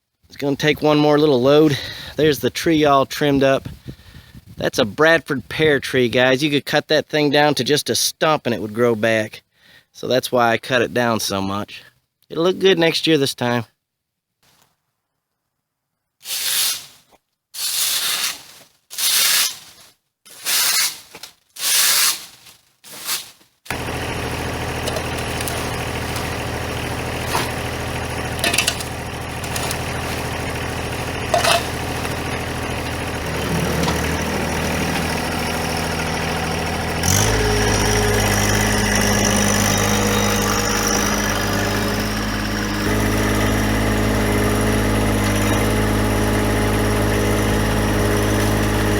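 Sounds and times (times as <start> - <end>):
tractor engine running: 0.3 - 4.0, 23.7 - 48.9.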